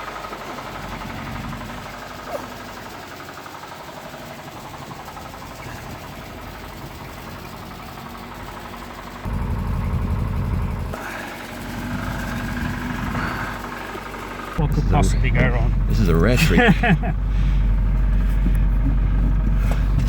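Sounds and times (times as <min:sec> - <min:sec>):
car engine idling lumpily: 0:00.0 - 0:20.0
low rumble: 0:14.6 - 0:20.0.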